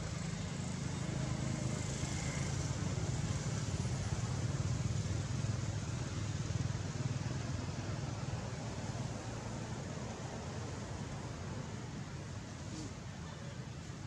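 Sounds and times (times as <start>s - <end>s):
engine running steadily: 0.0s - 14.0s
faint hiss: 10.4s - 14.0s.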